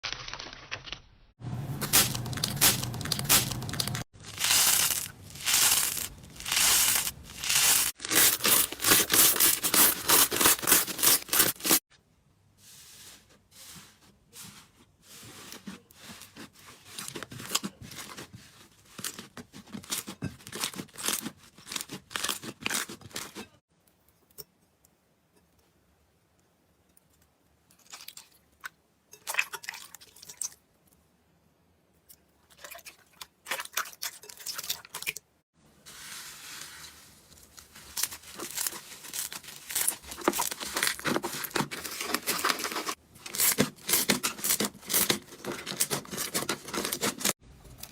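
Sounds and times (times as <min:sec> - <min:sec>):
slime crackling and popping: 0:01.8 - 0:08.6.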